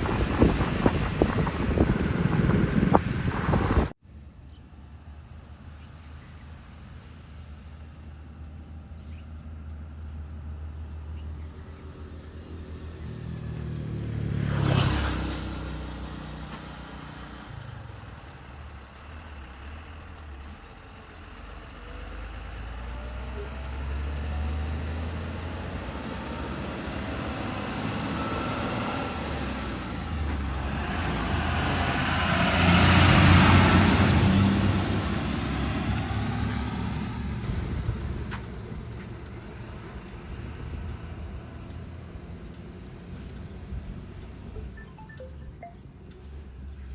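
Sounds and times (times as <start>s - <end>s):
heavy vehicle diesel engine: 0.0s - 4.0s, 15.1s - 46.9s.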